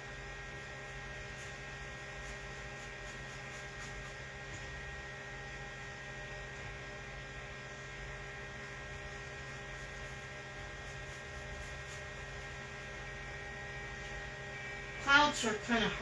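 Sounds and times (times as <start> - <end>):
electrical mains hum: 0.0 - 16.0
steady electrical tones: 12.8 - 16.0.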